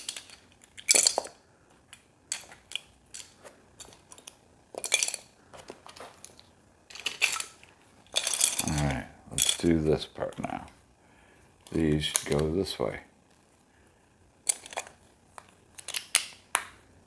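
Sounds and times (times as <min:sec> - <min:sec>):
small hard pieces clicking: 0:00.0 - 0:05.3, 0:06.2 - 0:09.7, 0:14.4 - 0:16.7.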